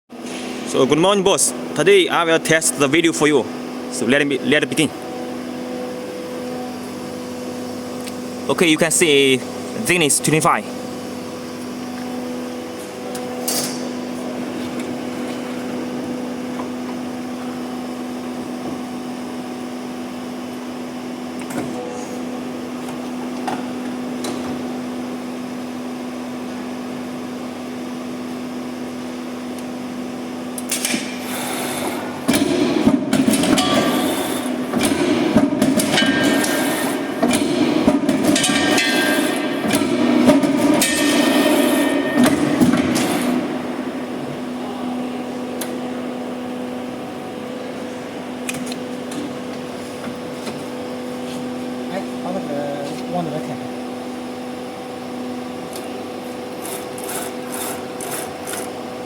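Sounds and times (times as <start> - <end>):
punching machine humming: 28.8 - 52.4
machine knocking and clanking on steel: 32.3 - 43.3.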